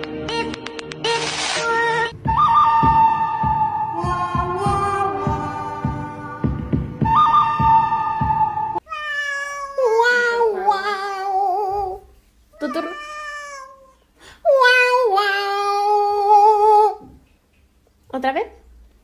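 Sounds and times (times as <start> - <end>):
cat yowling: 8.8 - 10.9, 12.6 - 14.0.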